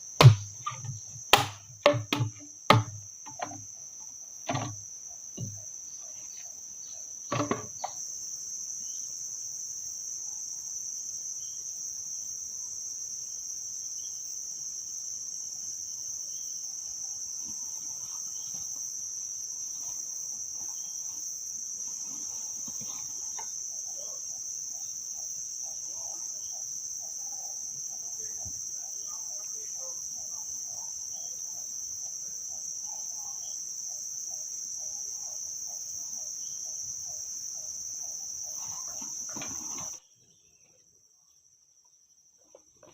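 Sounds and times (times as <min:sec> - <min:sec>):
insect chorus drone: 0:00.0 - 0:42.9
sharp knocks: 0:00.2 - 0:03.6, 0:07.3 - 0:07.9.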